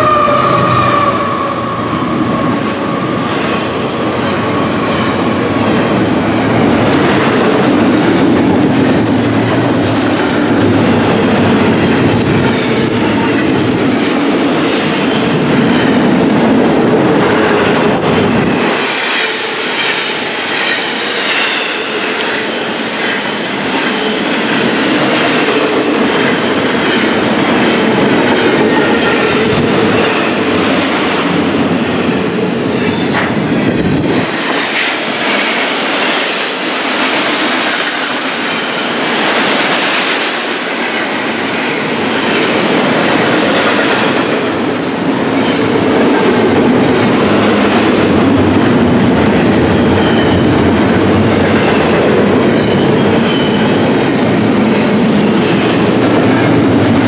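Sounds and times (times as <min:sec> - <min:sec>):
train wheels rumbling: 0:00.0 - 0:57.0
wheels clickety-clack over rails: 0:03.2 - 0:57.0
wheel squeal on rail: 0:49.8 - 0:50.6, 0:51.6 - 0:55.4.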